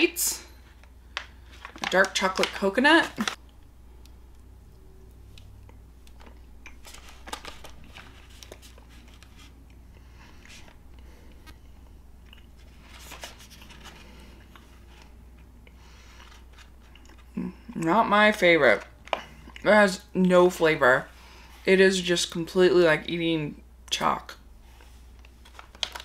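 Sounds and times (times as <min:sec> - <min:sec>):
low steady hum: 0:00.0 - 0:26.0
quiet chewing with crunches: 0:09.6 - 0:12.8, 0:14.2 - 0:17.4.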